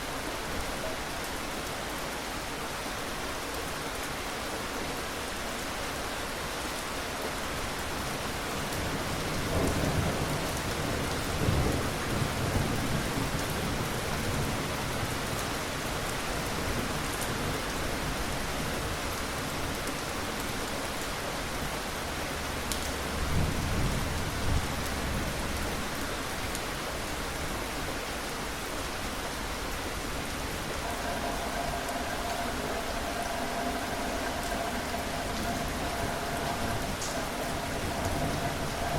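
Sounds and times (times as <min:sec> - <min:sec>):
steady rain falling: 0:00.0 - 0:38.9
low rolls of thunder: 0:08.7 - 0:15.6, 0:30.1 - 0:38.9.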